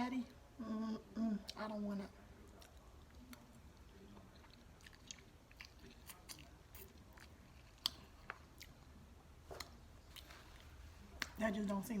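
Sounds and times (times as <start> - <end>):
soft chewing: 0.2 - 12.0.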